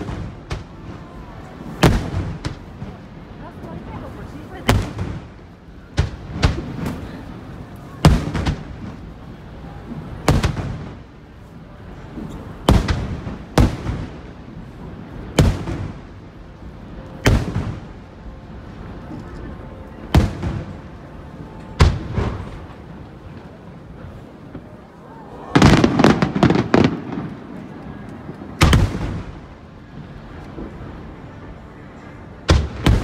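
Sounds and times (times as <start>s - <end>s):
firework booms with rumbling tails: 0.0s - 3.4s, 4.5s - 7.4s, 8.0s - 11.1s, 12.0s - 16.2s, 25.5s - 31.0s, 32.5s - 33.0s.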